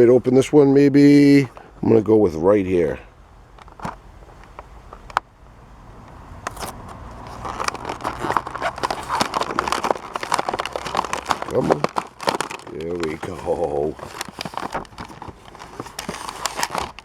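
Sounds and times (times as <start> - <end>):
packaging crackling and crinkling: 3.6 - 5.2, 6.5 - 17.0
packaging sharp clicks: 6.5 - 17.0.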